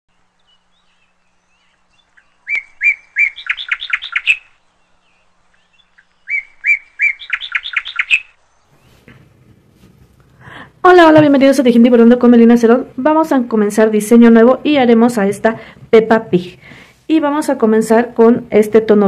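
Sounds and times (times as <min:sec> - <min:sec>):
songbird singing: 0:00.1 - 0:09.4.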